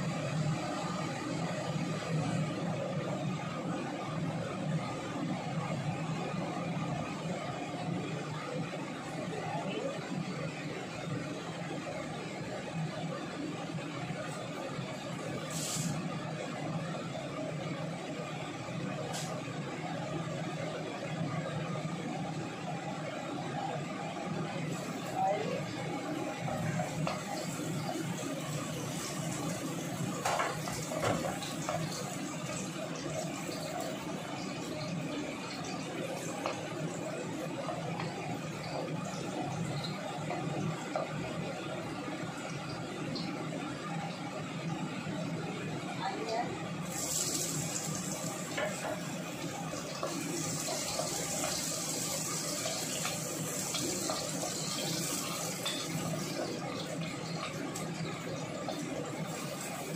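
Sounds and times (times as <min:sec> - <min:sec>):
garlic sizzling in oil: 0:15.2 - 0:16.0, 0:24.7 - 0:41.4, 0:46.8 - 0:59.9.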